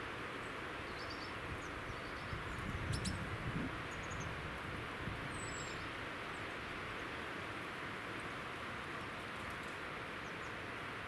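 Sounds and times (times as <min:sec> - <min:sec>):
small birds calling: 0:00.4 - 0:04.4, 0:05.3 - 0:06.6.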